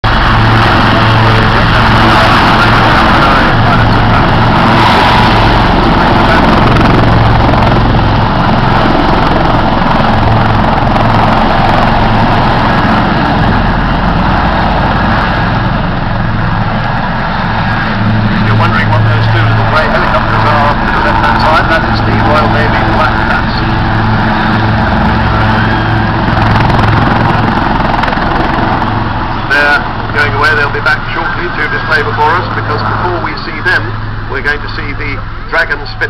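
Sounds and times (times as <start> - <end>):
helicopters running close by: 0.0 - 36.0.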